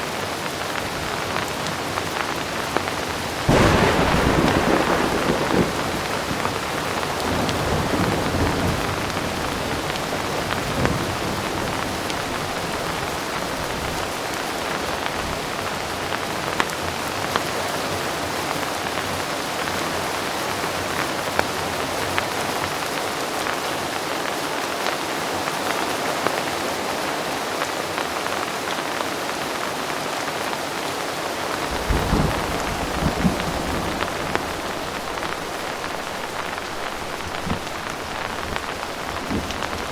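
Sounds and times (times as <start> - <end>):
heavy rain: 0.0 - 39.9
sharp raindrop hits: 2.7 - 14.1, 31.6 - 39.9
distant thunder rumbling: 3.3 - 14.1, 31.6 - 39.9.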